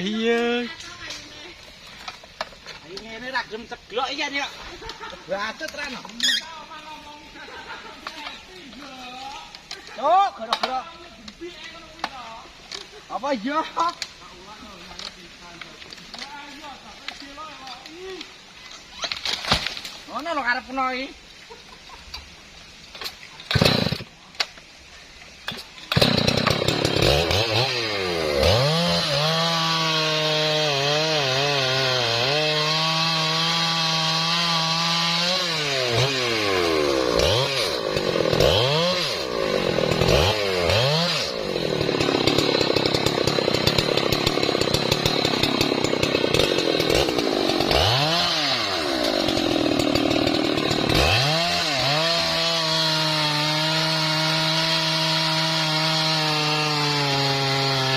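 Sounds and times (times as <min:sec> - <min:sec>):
chainsaw cutting log: 0:23.0 - 0:24.1, 0:25.5 - 0:57.9.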